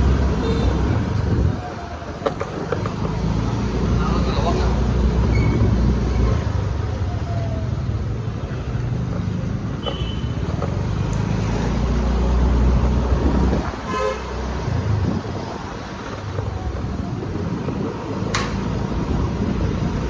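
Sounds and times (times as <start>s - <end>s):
road traffic rumble: 0.0s - 20.0s
vehicle horn honking: 9.8s - 10.4s, 13.8s - 14.3s.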